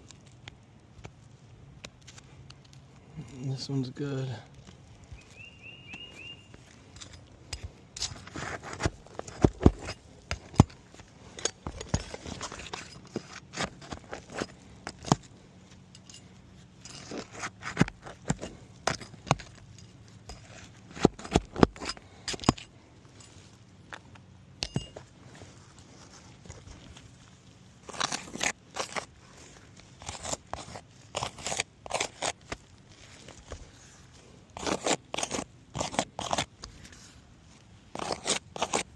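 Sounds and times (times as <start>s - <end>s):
shingles cracking and tearing: 6.6s - 15.5s, 16.8s - 22.6s, 26.3s - 36.9s, 37.9s - 38.9s.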